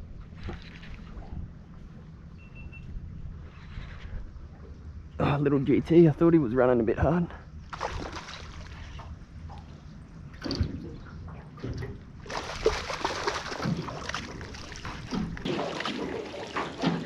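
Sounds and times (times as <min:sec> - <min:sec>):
water sloshing and splashing: 0:00.0 - 0:02.2, 0:03.4 - 0:05.2, 0:07.6 - 0:17.0.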